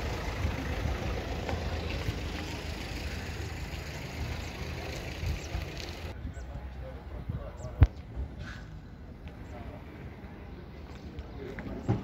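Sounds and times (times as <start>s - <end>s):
vehicle engine idling: 0.0s - 6.2s.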